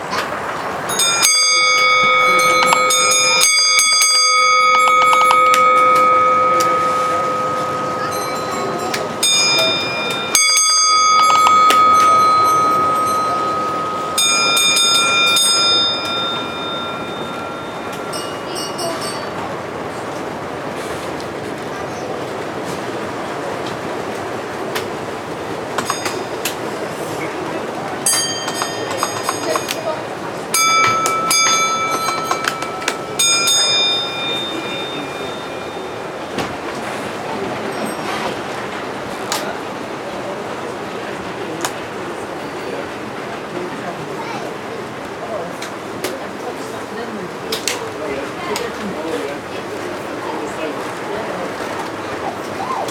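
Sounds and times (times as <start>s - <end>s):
background hubbub: 0.0s - 52.9s
hall noise: 0.0s - 52.9s
metallic bell ringing: 0.9s - 19.5s, 25.8s - 26.5s, 28.0s - 36.4s
steady high tone: 0.9s - 20.6s, 28.0s - 38.3s.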